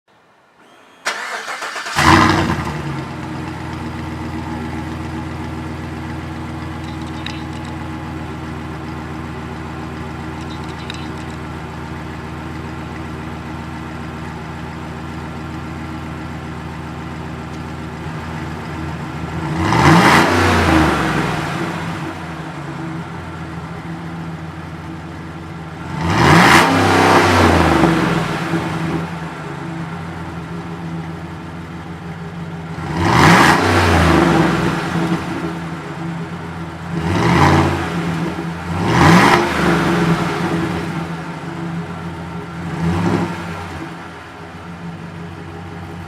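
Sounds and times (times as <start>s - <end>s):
engine idling: 0.8s - 20.0s, 21.2s - 26.1s, 27.1s - 32.9s, 34.1s - 37.0s, 40.0s - 46.0s
engine revving: 1.1s - 3.2s, 19.2s - 22.5s, 25.8s - 29.3s, 32.7s - 35.8s, 36.8s - 41.5s, 42.6s - 44.1s.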